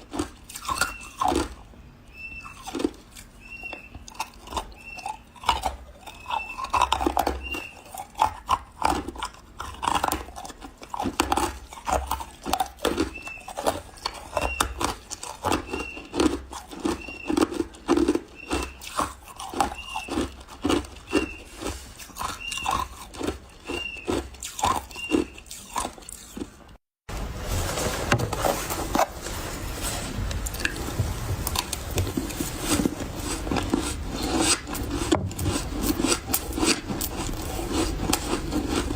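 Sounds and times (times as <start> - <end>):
chewing crunchy ice: 0.0 - 26.8, 30.4 - 38.9
rasping scraping sound: 27.1 - 38.9.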